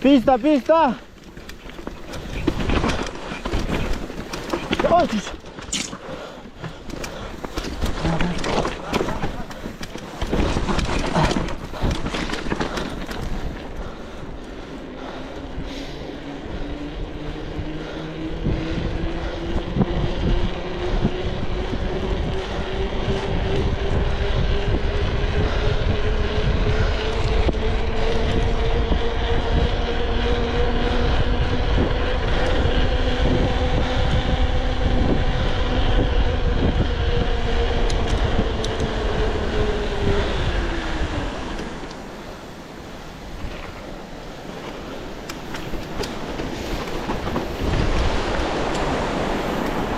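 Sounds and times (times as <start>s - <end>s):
vehicle engine labouring: 0.0s - 49.9s
heavy rumbling with knocks: 1.3s - 14.0s.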